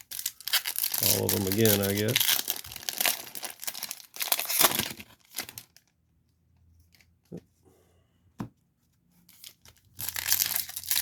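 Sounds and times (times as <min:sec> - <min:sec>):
foil wrapper crinkling and tearing: 0:00.0 - 0:05.9, 0:09.4 - 0:11.0.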